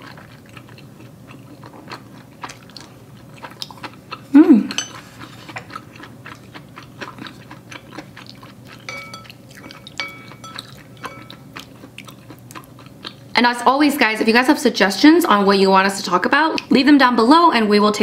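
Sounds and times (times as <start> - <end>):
chewing with mouth clicks: 0.0 - 4.3, 4.9 - 13.4
chopsticks clinking on bowl: 4.7 - 5.7, 8.7 - 11.8.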